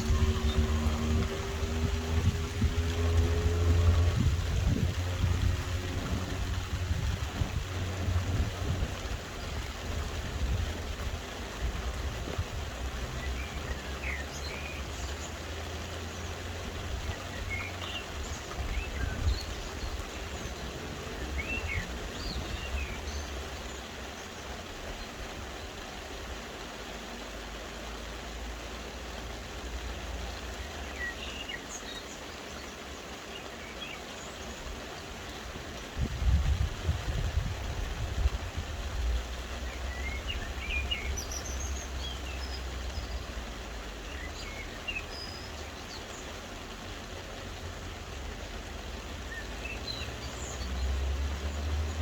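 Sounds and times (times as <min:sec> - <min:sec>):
low rumble: 0:00.0 - 0:09.2
soft rain falling: 0:00.0 - 0:52.0
small birds chirping: 0:11.7 - 0:25.8, 0:39.0 - 0:52.0.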